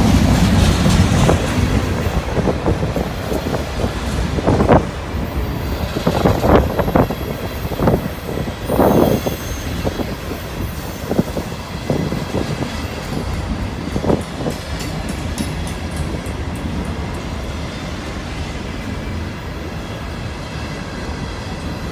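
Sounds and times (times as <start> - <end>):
train clanks and clatter: 0.0 - 21.9
train wheels rumbling on rail: 0.0 - 21.9.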